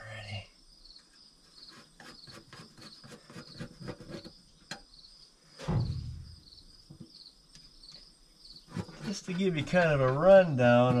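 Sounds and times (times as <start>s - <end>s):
crickets chirping: 0.0s - 11.0s
heavy thud: 5.6s - 6.5s.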